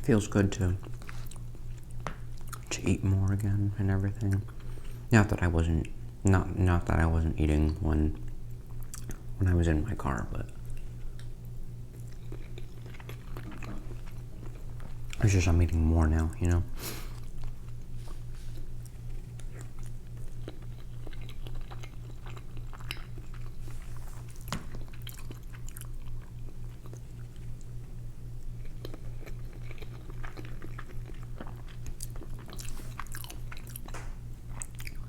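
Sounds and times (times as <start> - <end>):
person chewing food: 0.8 - 3.5, 8.2 - 9.3, 10.5 - 15.3, 17.0 - 35.0.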